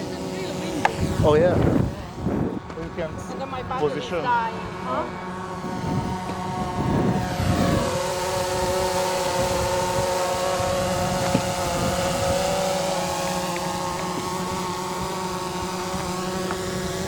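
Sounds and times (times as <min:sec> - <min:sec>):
model airplane motor droning: 0:00.0 - 0:17.0
wind buffeting microphone: 0:00.5 - 0:17.0.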